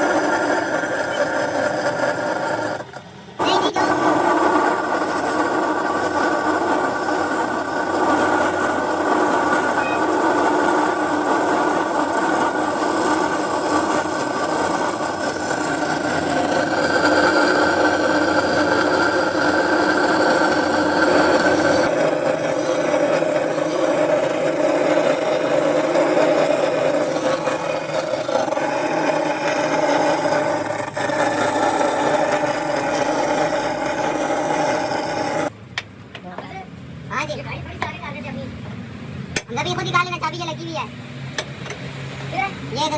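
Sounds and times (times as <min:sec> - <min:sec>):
motor humming steadily: 0:00.0 - 0:35.6.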